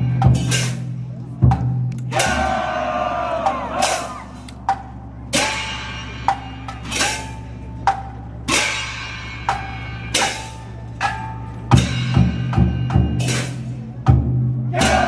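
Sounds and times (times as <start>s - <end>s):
cymbal strokes: 0.0s - 14.0s
heavy drum beats: 0.0s - 15.0s
gong strokes: 2.1s - 13.8s.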